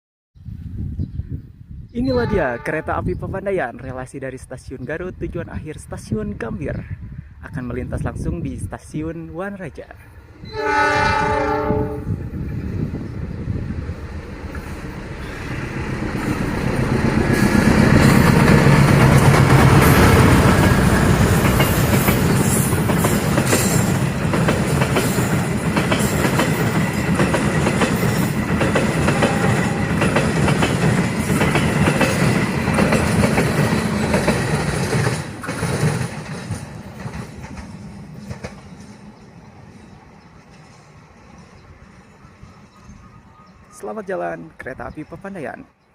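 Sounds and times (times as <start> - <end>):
train horn: 2.1 - 3.0, 10.4 - 12.2, 29.0 - 30.0
locomotive rumble: 9.8 - 43.8
coaches clattering over rails: 12.4 - 42.5.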